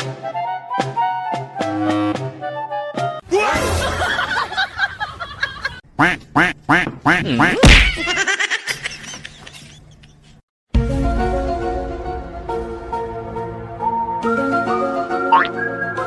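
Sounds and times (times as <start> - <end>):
background music: 0.0 - 4.5, 10.8 - 16.0.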